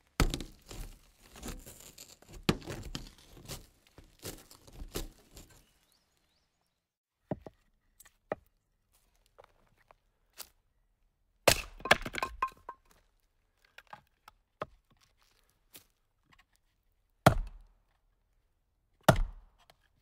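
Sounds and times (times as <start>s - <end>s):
knocks and crackles: 0.0s - 5.6s.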